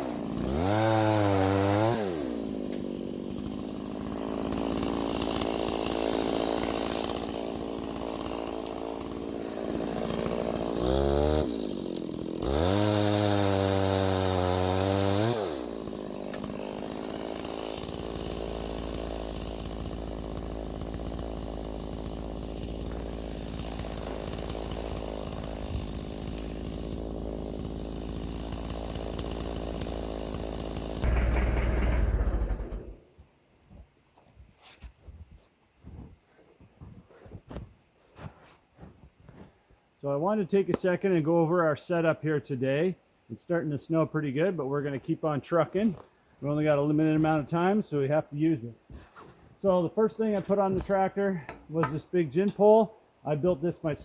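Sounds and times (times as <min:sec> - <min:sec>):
chainsaw running and revving: 0:00.0 - 0:33.0.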